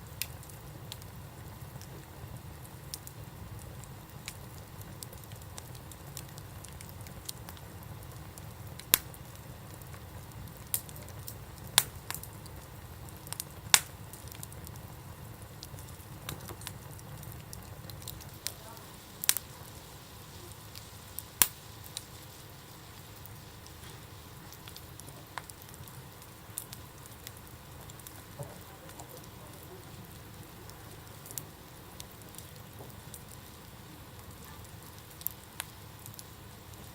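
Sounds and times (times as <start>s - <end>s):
campfire crackling: 0.0s - 36.9s.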